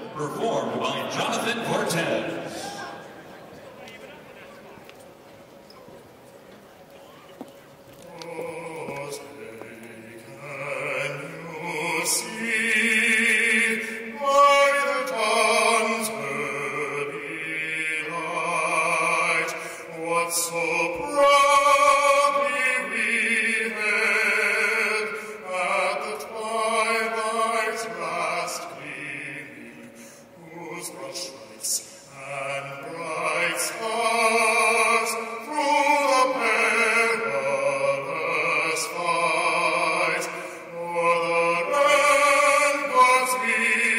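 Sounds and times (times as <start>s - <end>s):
man singing with vibrato: 0.0s - 3.0s, 8.1s - 43.9s.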